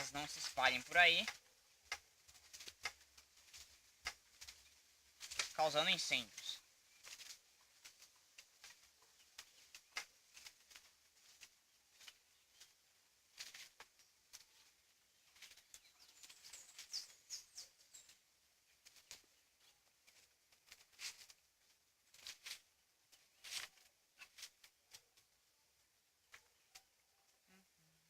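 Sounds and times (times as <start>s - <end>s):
dry leaves and twigs crackling: 0.0s - 27.4s
bird chirps: 14.0s - 18.2s.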